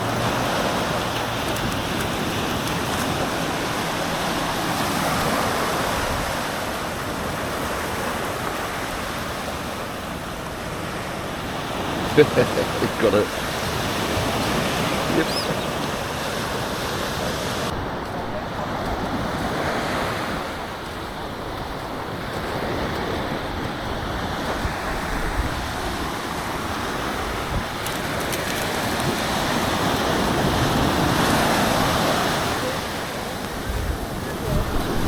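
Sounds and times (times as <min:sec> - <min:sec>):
sea waves washing onto beach: 0:00.0 - 0:35.0
wind on microphone: 0:16.9 - 0:35.0.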